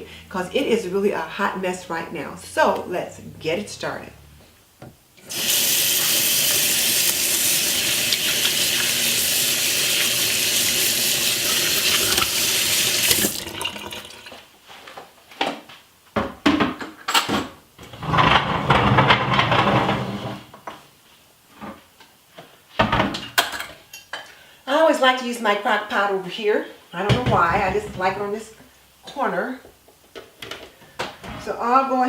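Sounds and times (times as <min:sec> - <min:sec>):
tap running into a sink: 0:05.3 - 0:14.4.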